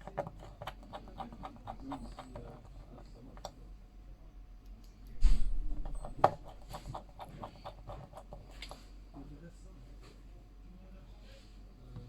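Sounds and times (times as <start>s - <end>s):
small objects clicking and tapping: 5.7s - 8.8s.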